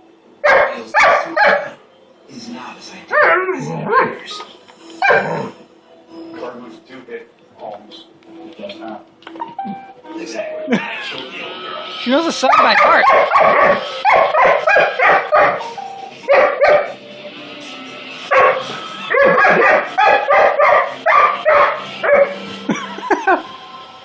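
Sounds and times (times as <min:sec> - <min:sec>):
dog barking: 0:00.4 - 0:01.8, 0:03.1 - 0:04.2, 0:05.0 - 0:05.5, 0:12.5 - 0:15.6, 0:16.3 - 0:17.0, 0:18.3 - 0:22.4.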